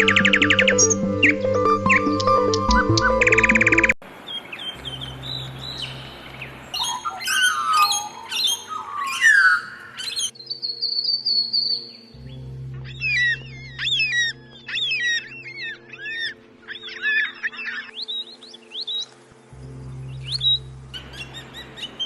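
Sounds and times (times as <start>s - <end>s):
birds chirping and warbling: 0.0s - 22.0s
faint steady tones: 11.8s - 22.0s.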